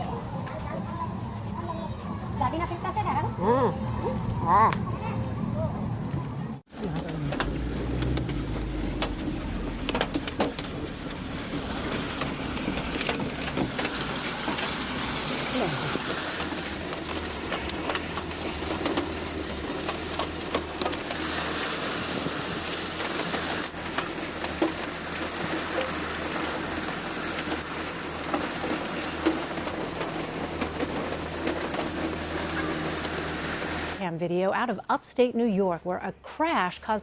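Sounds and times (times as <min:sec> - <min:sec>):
heavy rain hiss: 0:06.9 - 0:34.0.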